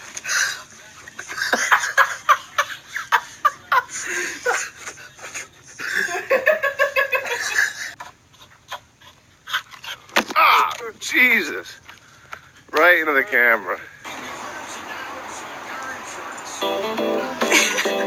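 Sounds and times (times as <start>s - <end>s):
people laughing hard: 1.2s - 8.8s, 14.1s - 18.0s.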